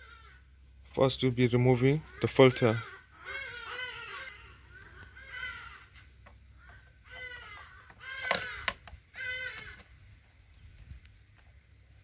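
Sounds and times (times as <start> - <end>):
bird calling: 1.7 - 10.0.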